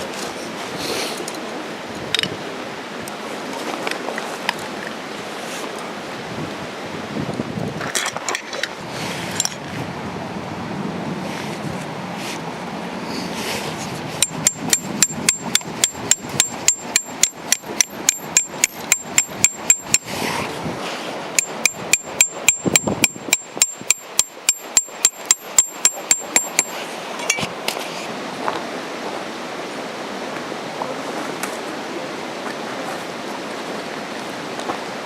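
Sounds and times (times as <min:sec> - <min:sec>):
hammer striking metal stake: 0:14.2 - 0:20.1, 0:21.4 - 0:27.5.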